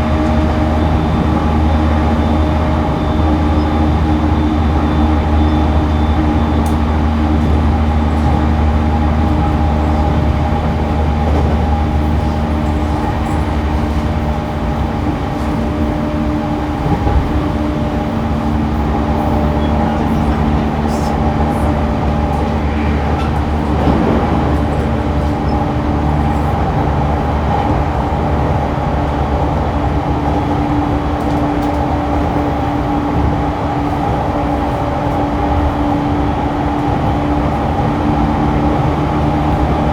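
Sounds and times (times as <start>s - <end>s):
train drive humming: 0.0s - 39.9s
train wheels rumbling on rail: 0.0s - 39.9s.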